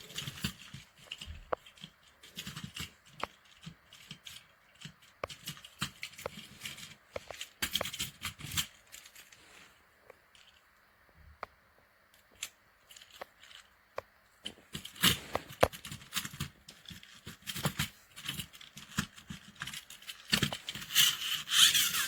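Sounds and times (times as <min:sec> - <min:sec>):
small objects clicking and rustling: 0:00.0 - 0:22.0.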